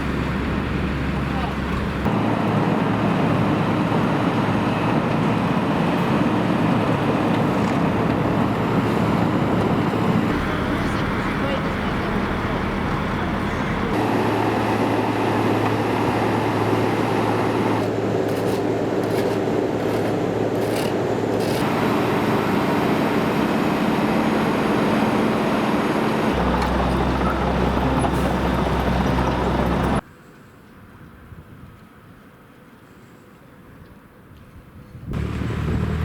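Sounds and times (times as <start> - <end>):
low engine hum: 0.0 - 18.2, 21.6 - 30.0, 35.1 - 36.0
road-repair machinery engines: 0.0 - 30.1, 35.2 - 36.0.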